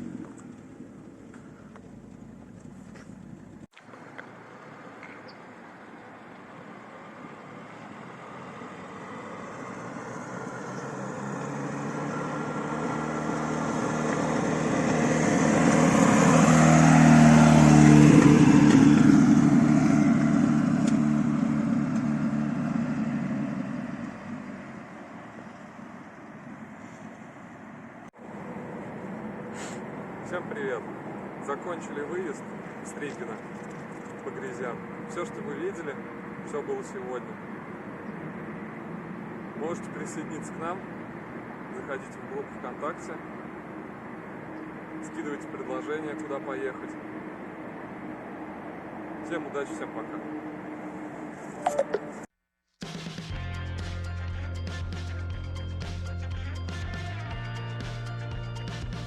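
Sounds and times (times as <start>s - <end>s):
car driving past: 6.6s - 52.3s.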